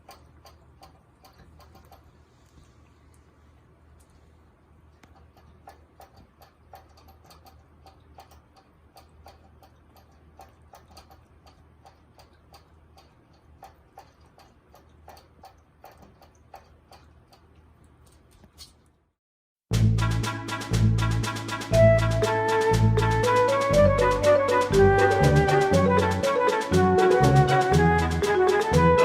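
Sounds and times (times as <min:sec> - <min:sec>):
light clicks and taps: 0:00.0 - 0:03.3, 0:04.9 - 0:19.0.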